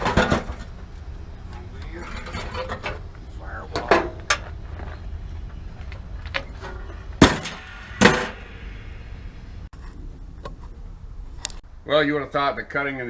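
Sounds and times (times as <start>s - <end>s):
loud ringing metal bangs: 7.2s - 9.7s.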